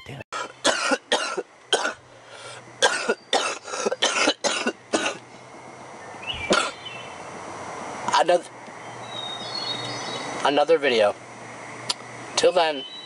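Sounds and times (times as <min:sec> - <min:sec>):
person coughing: 0:00.4 - 0:02.0, 0:02.8 - 0:05.2, 0:06.5 - 0:06.8.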